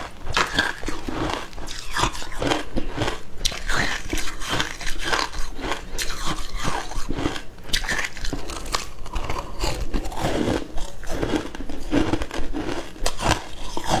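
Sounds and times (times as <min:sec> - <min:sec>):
ice crunching between teeth: 0:00.0 - 0:14.0.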